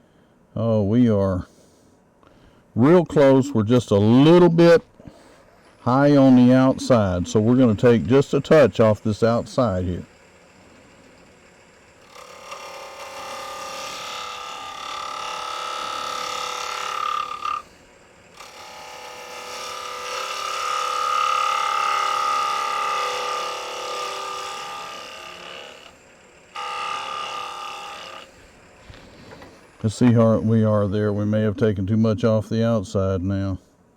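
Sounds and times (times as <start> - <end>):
lathe tool cutting wood: 5.6 - 31.5.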